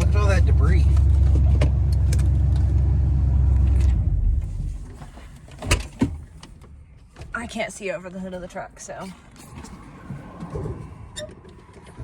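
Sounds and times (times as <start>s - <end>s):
truck rumbling on dirt road: 0.0s - 6.4s.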